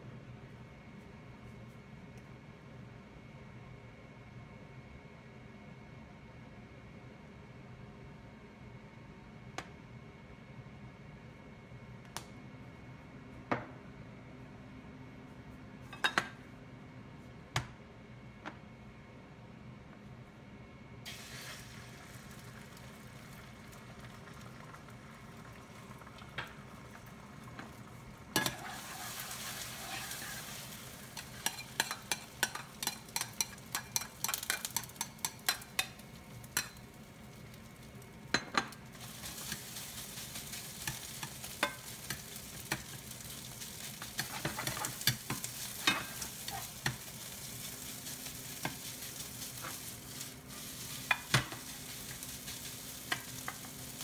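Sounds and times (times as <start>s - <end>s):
egg and rice sizzling in pan: 21.0s - 54.0s
ladle scraping against pan: 28.4s - 30.6s.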